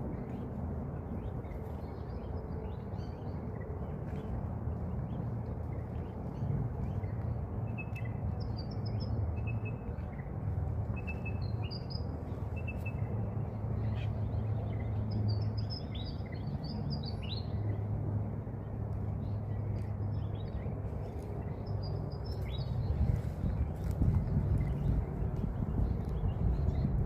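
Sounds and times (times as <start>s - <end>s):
low background rumble: 0.0s - 27.0s.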